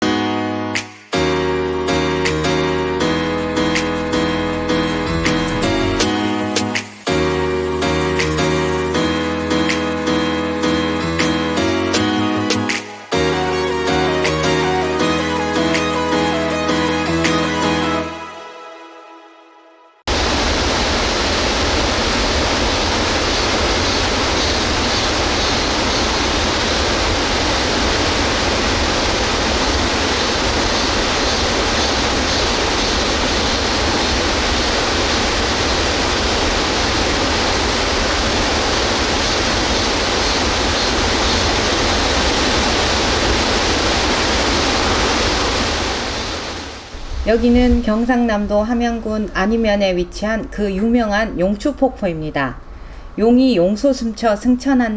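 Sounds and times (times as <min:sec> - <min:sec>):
water rushing over rocks: 0:20.1 - 0:47.9.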